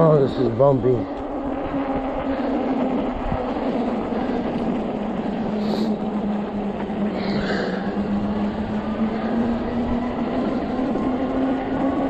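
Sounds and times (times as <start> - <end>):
electric motor hum: 0.0 - 12.0
tyres rumbling on snow: 0.0 - 12.0.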